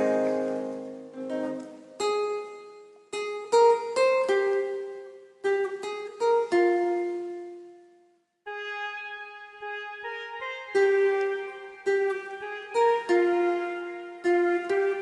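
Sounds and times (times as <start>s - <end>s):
plucked-string melody: 0.0s - 15.0s.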